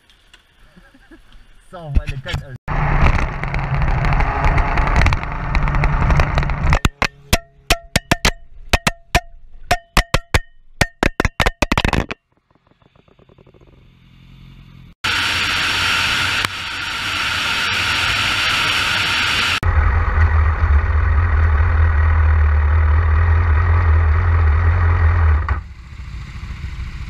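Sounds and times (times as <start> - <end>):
sharp irregular cracks: 2.7 - 13.6
motorcycle engine running: 2.7 - 15.0, 19.2 - 27.0.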